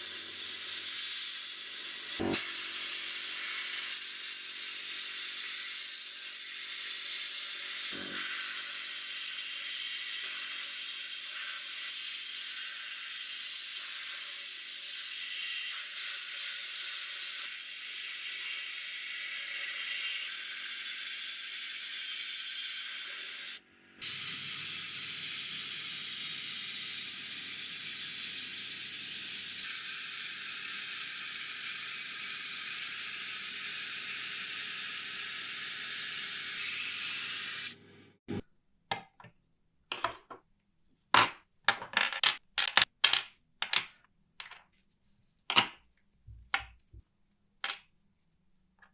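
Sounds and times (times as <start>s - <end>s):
compressed air spraying: 24.0s - 37.8s.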